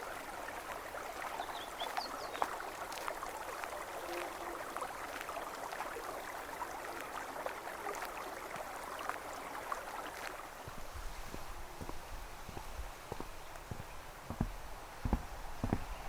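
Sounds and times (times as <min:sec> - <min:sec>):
stream running: 0:00.0 - 0:16.0
soft low thumps: 0:10.7 - 0:16.0.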